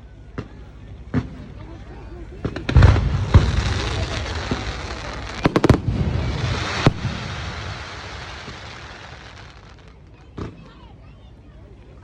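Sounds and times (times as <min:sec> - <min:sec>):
fireworks banging: 0:02.4 - 0:10.0
crackling hiss: 0:02.6 - 0:10.2.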